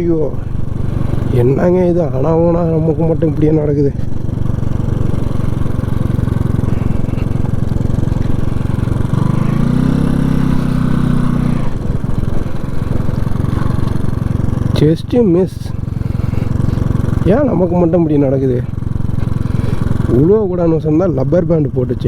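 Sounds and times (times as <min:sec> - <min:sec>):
low droning tone: 0:00.0 - 0:17.9
motorcycle engine pulsing: 0:00.0 - 0:22.0
road and wind noise: 0:00.0 - 0:22.0.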